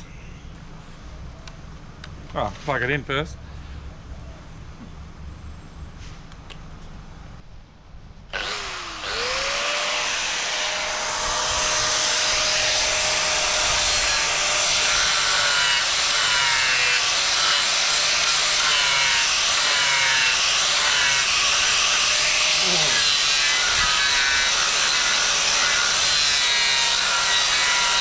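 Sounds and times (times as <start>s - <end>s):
electric router whining: 8.3s - 28.0s
router shredding wood: 8.3s - 28.0s.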